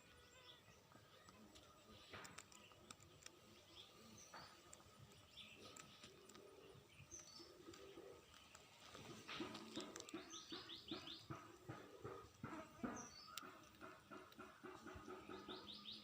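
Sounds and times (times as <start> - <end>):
small bird chirps: 0.0 - 16.0.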